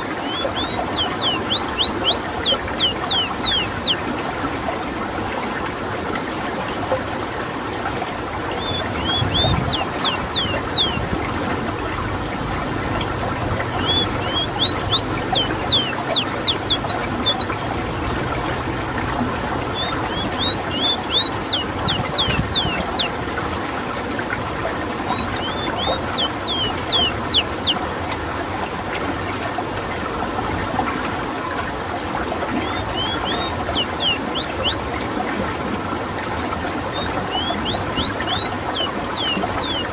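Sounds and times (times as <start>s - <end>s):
bird singing high whistled notes: 0.3s - 4.0s, 8.5s - 11.0s, 13.7s - 17.6s, 19.7s - 23.1s, 25.1s - 27.8s, 32.6s - 34.8s, 36.9s - 39.9s.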